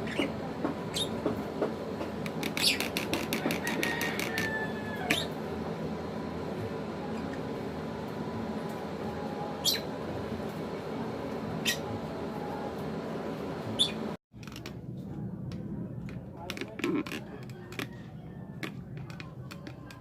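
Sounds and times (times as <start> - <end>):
bird chirping: 13.8 - 14.0.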